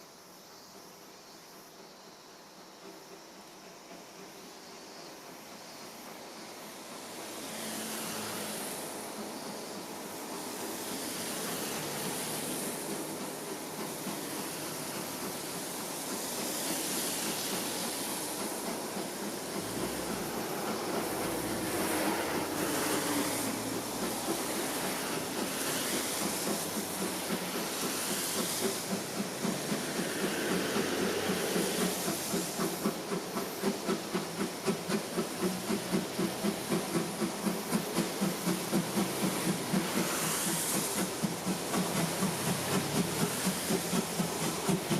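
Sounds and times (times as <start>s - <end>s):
steam hissing: 0.0s - 44.9s
steam locomotive chuffing: 0.1s - 44.9s.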